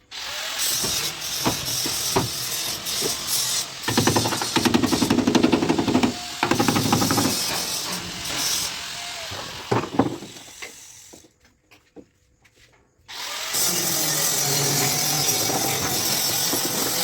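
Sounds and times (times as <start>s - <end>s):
rapid hammering on sheet metal: 3.8s - 8.6s
knocks: 3.9s - 8.5s.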